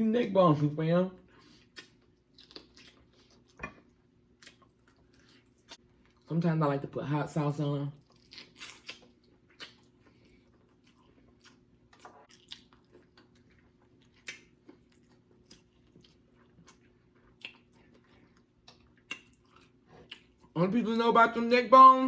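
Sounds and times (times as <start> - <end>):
chewing meat: 1.4 - 6.3, 7.9 - 20.6.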